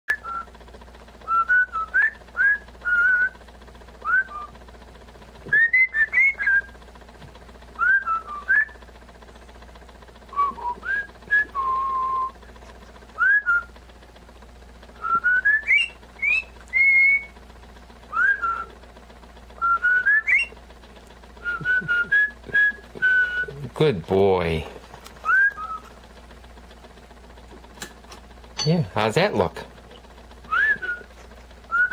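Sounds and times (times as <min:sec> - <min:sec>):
parrot whistling: 0:05.5 - 0:06.7, 0:15.1 - 0:17.3, 0:19.6 - 0:20.5, 0:25.2 - 0:25.8.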